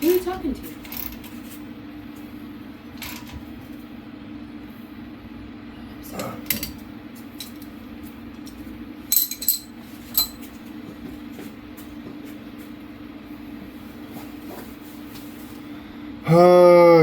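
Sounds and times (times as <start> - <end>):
metal tools clinking: 8.4 - 10.5.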